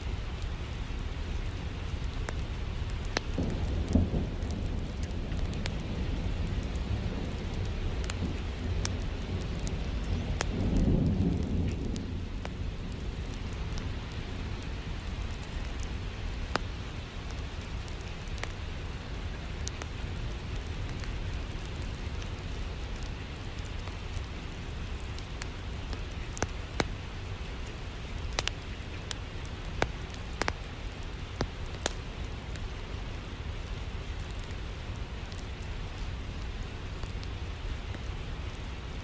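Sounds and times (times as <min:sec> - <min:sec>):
steady rain: 0:00.0 - 0:39.0
wood fire crackling: 0:00.0 - 0:39.0
sharp pops from fire: 0:03.0 - 0:05.9, 0:07.6 - 0:13.8, 0:25.1 - 0:27.0, 0:28.2 - 0:32.7.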